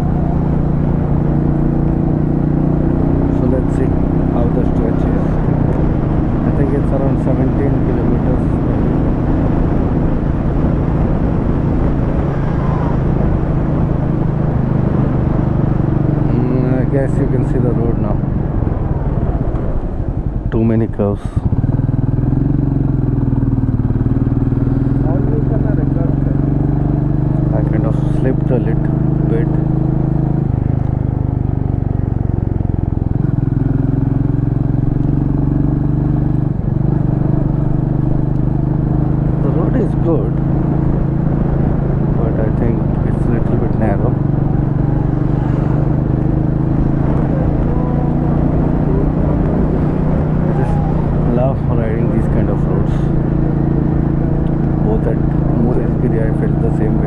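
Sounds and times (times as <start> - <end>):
motorcycle engine running: 0.0 - 57.0
rush of noise: 9.8 - 21.8, 42.1 - 57.0.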